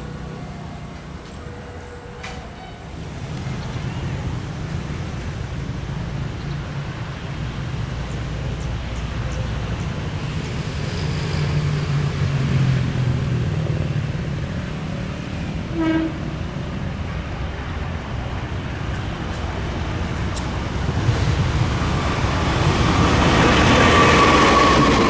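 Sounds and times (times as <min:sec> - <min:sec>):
diesel locomotive rumble: 0:00.0 - 0:25.0
train horn toot: 0:00.6 - 0:04.3, 0:15.4 - 0:17.0.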